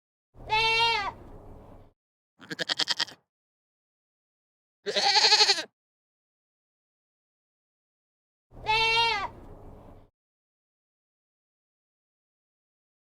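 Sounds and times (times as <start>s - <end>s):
goat or sheep bleating: 0.5s - 1.2s, 2.4s - 3.2s, 4.9s - 5.7s, 8.6s - 9.3s.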